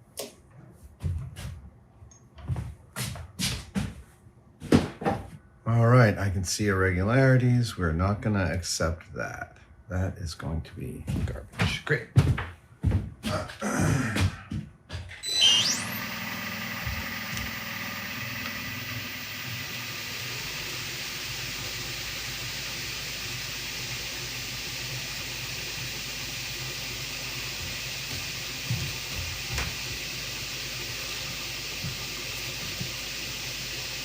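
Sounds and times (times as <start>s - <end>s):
machine tool spindle whining: 15.2s - 34.0s.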